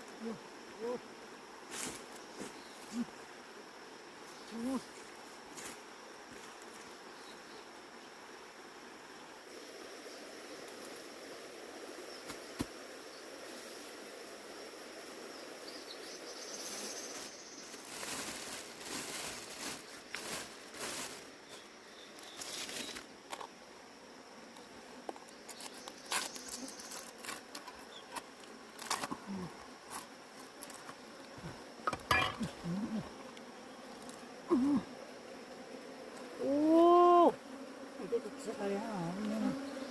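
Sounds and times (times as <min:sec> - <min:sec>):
insects chirring: 0:00.0 - 0:39.9
rustling and scraping: 0:17.0 - 0:21.6, 0:22.2 - 0:23.5, 0:29.9 - 0:32.6.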